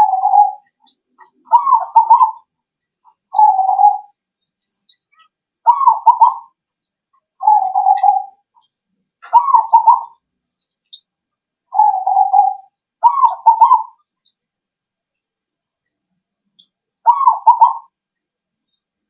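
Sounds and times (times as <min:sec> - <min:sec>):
dove cooing: 0:00.0 - 0:02.5, 0:03.3 - 0:04.1, 0:05.7 - 0:06.6, 0:07.4 - 0:08.4, 0:09.2 - 0:10.2, 0:11.7 - 0:14.0, 0:17.1 - 0:17.9.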